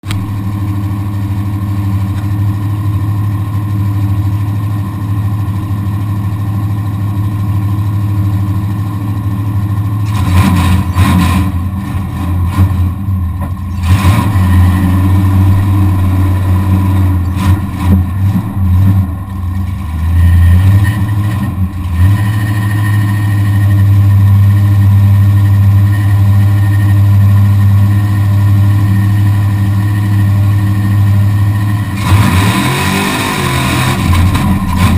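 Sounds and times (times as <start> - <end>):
truck engine revving: 10.0 - 34.9.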